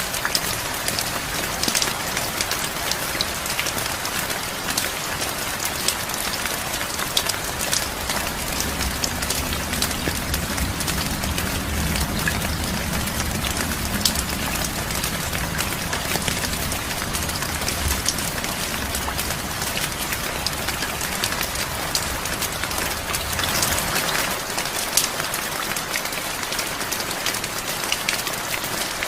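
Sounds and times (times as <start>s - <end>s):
heavy rain falling: 0.0s - 29.0s
raindrops ticking close by: 0.0s - 29.0s
low rumble: 6.0s - 24.0s.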